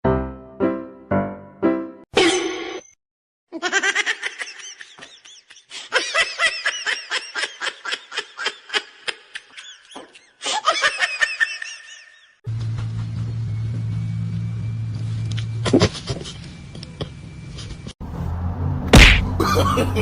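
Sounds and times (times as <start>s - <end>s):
person laughing hard: 3.6s - 12.3s, 19.3s - 20.0s.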